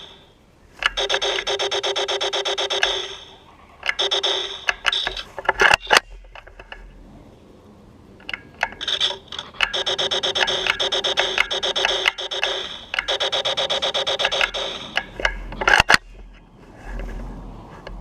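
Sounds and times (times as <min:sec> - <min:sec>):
laser tag gun firing: 0:00.8 - 0:06.1, 0:08.6 - 0:16.1.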